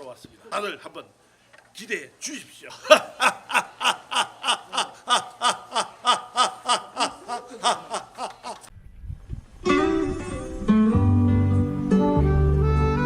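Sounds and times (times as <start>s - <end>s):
hearty laughter: 2.7s - 8.7s.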